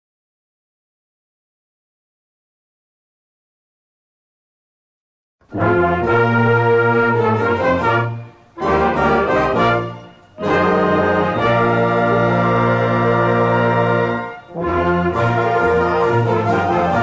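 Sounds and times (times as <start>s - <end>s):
marching band brass: 5.4s - 17.0s.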